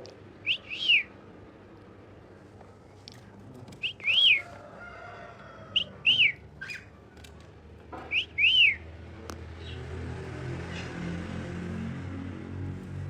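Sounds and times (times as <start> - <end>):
parrot whistling: 0.4 - 1.1, 8.1 - 8.8.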